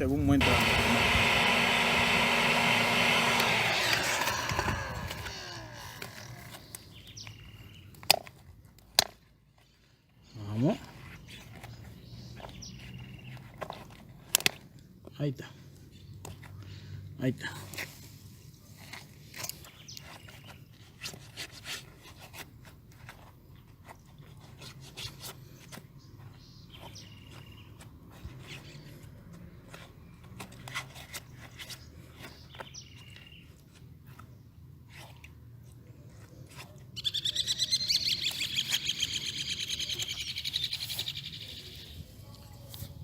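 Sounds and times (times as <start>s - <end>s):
short high bird chirps: 37.0s - 41.9s.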